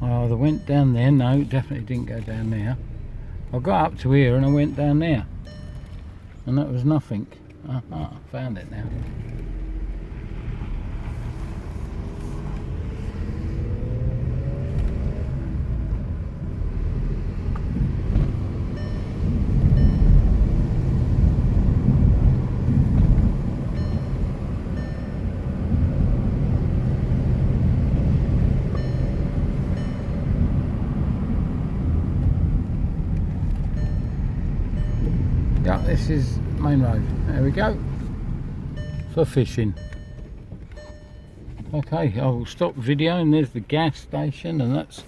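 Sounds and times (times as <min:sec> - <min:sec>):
road rumble: 0:00.0 - 0:45.0
car engine accelerating: 0:08.7 - 0:42.0.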